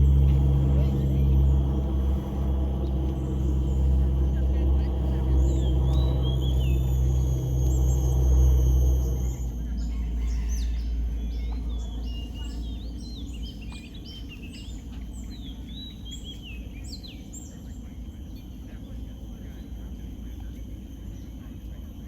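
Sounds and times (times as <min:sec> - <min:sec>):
low rumble: 0:00.0 - 0:14.2
birds chirping and whistling: 0:05.1 - 0:17.4.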